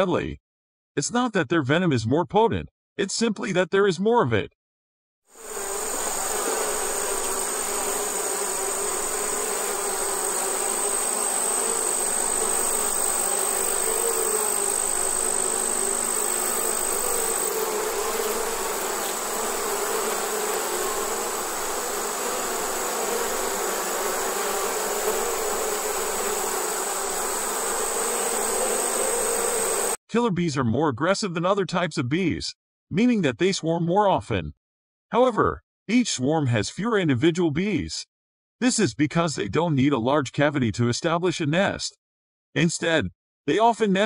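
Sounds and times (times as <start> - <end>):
bees buzzing: 5.4 - 30.0.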